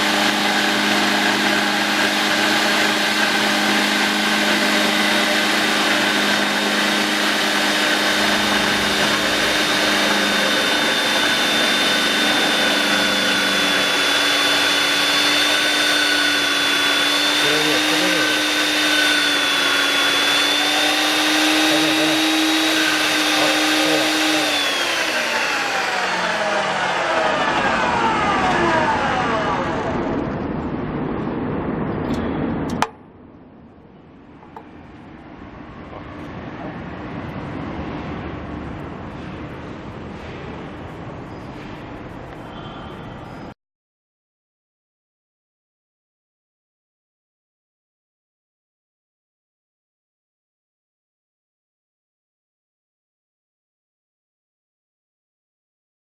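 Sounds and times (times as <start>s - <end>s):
band saw motor whining: 0.0s - 30.2s.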